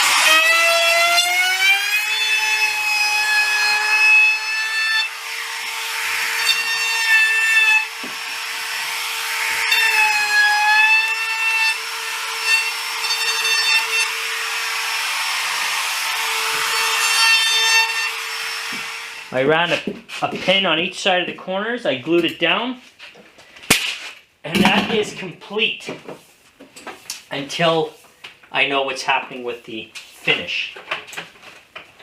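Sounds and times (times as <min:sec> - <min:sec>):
power tool motor whining: 0:00.0 - 0:03.9
tool cutting wood: 0:00.0 - 0:20.4.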